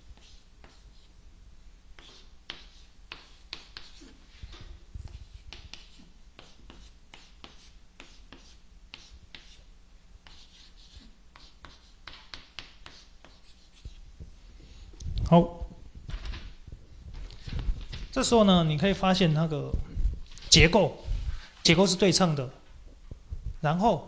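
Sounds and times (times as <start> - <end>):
pen scratching on paper: 0.1 - 1.1, 2.0 - 9.6, 10.2 - 14.0.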